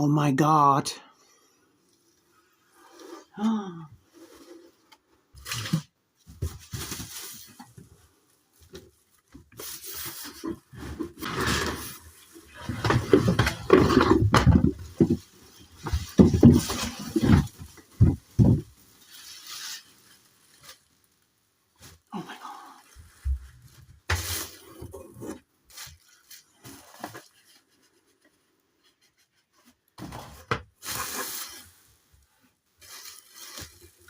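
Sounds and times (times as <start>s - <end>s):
packaging rustling: 5.3s - 22.2s, 29.1s - 34.0s.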